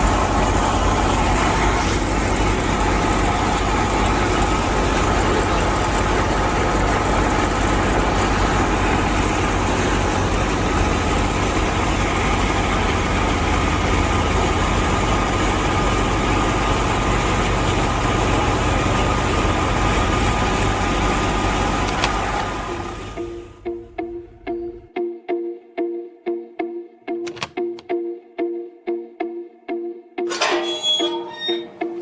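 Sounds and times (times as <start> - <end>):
motor running with whine: 0.0 - 24.8
sharp click: 27.2 - 27.9.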